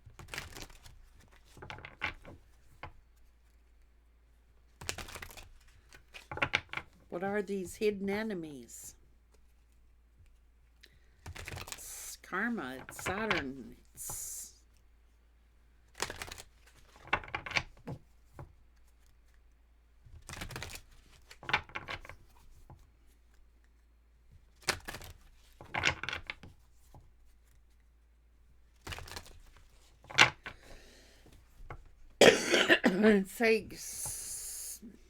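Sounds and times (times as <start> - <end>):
cards being shuffled: 0.1 - 2.3, 4.7 - 6.4, 11.2 - 11.8, 15.9 - 17.2, 24.5 - 26.5, 28.8 - 30.8.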